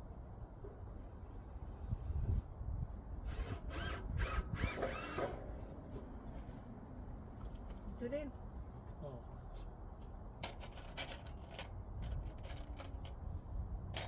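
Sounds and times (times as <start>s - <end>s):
power drill motor whine: 3.3s - 5.4s.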